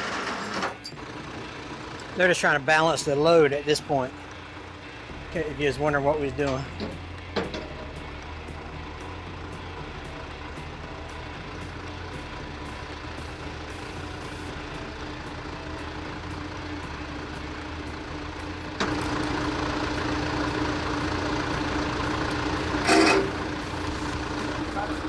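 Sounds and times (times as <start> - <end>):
heavy equipment engine running: 0.0 - 25.0.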